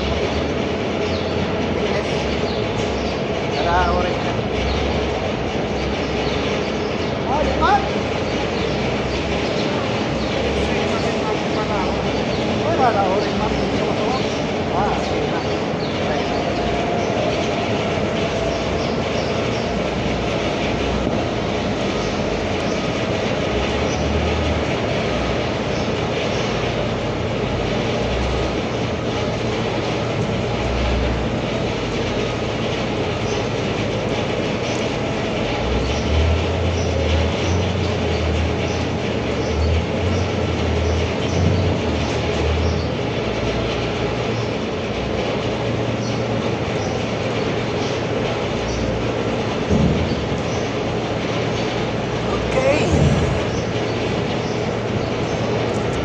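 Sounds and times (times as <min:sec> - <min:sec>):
machinery rushing noise: 0:00.0 - 0:36.8, 0:48.0 - 0:56.0
low hum: 0:52.2 - 0:56.0.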